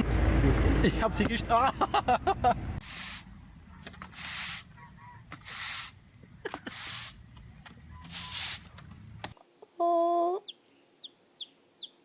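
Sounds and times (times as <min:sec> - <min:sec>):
short hissing bursts: 0:02.8 - 0:03.3, 0:04.0 - 0:04.7, 0:05.4 - 0:06.0, 0:06.6 - 0:07.2, 0:08.0 - 0:08.7.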